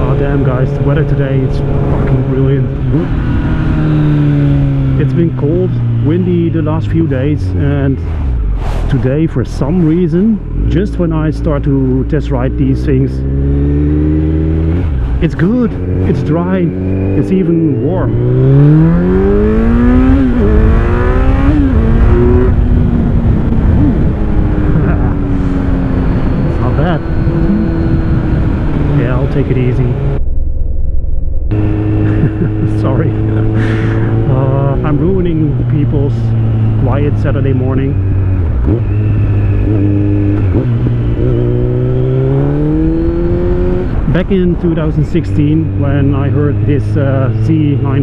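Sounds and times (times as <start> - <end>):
motorcycle engine revving and upshifting: 0.0 - 8.6, 9.4 - 30.2, 31.5 - 48.0
rushing wind noise: 13.6 - 47.4.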